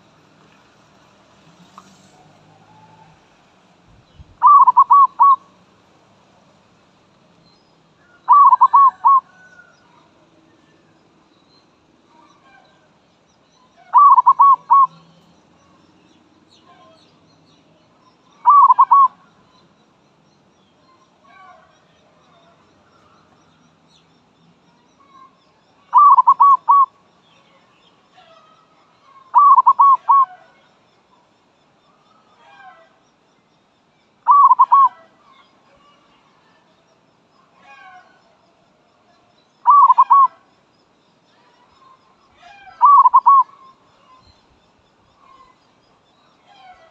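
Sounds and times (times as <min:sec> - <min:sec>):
faint bird chirps: 0:04.0 - 0:05.6, 0:07.3 - 0:46.9
dove cooing: 0:04.4 - 0:05.5, 0:08.2 - 0:09.5, 0:13.9 - 0:15.0, 0:18.4 - 0:19.2, 0:25.9 - 0:26.9, 0:29.3 - 0:30.4, 0:34.3 - 0:35.0, 0:39.6 - 0:40.4, 0:42.5 - 0:43.6.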